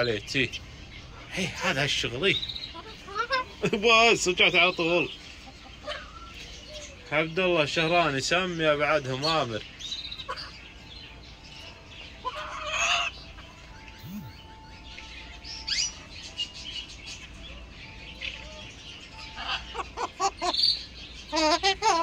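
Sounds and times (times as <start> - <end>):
birds calling and chirping: 0.0 - 22.0.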